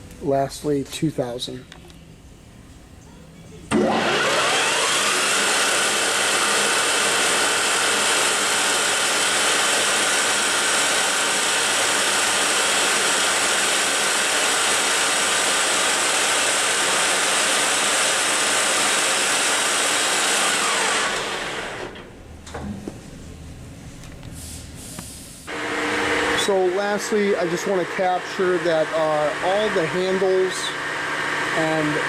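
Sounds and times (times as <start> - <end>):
lathe spindle whirring: 3.7 - 22.1, 25.5 - 32.0.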